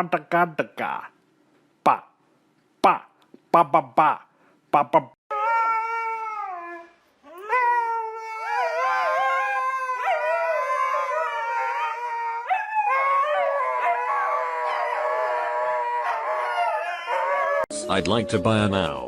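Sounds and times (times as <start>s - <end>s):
second dog howling: 5.3s - 18.5s
dog howling: 5.3s - 18.8s.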